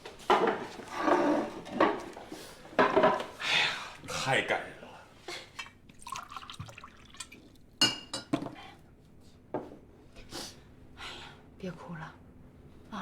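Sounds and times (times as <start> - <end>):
glass or crockery clinking: 7.8 - 8.3.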